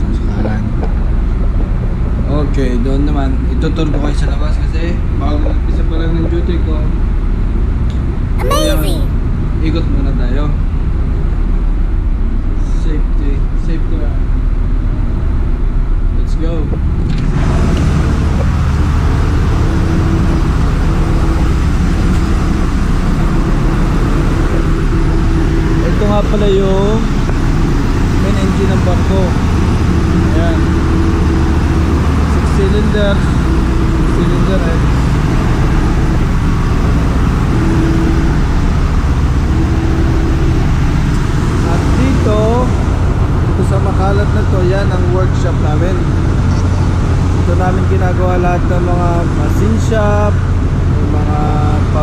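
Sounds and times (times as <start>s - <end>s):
diesel engines droning: 18.1s - 52.0s.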